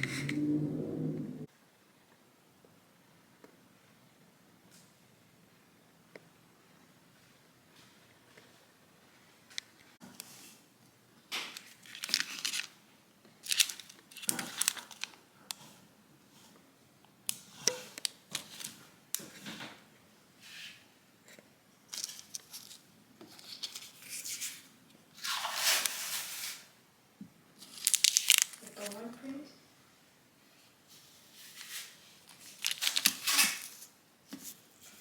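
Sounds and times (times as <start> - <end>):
packaging crinkling and tearing: 11.4 - 12.8, 13.4 - 15.2, 27.6 - 29.1, 31.6 - 33.9.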